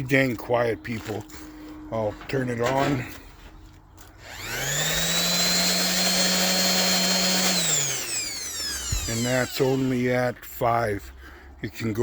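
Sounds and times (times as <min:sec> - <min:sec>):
power tool motor whining: 0:04.0 - 0:10.2.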